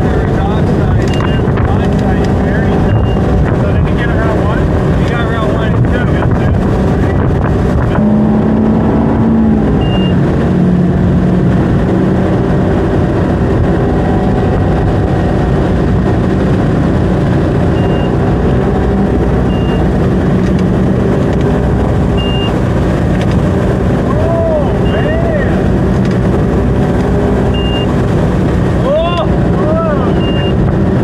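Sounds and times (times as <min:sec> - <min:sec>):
boat engine running: 0:00.0 - 0:31.0
water noise: 0:00.0 - 0:31.0
wind noise: 0:00.0 - 0:31.0
short high beeps: 0:01.1 - 0:01.4, 0:02.8 - 0:03.2, 0:09.8 - 0:10.2, 0:17.7 - 0:18.2, 0:19.4 - 0:19.9, 0:22.2 - 0:22.6, 0:24.8 - 0:25.1, 0:27.5 - 0:27.9, 0:30.1 - 0:30.6.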